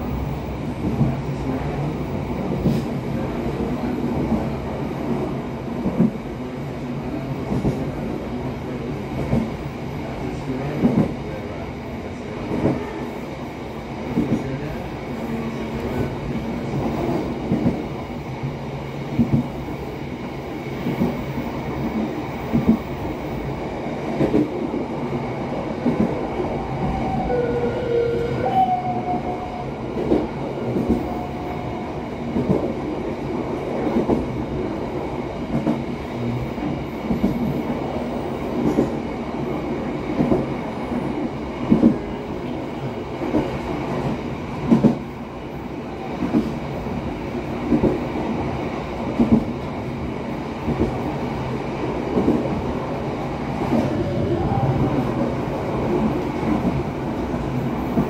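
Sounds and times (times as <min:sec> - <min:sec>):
train rumbling along track: 0:00.0 - 0:58.0.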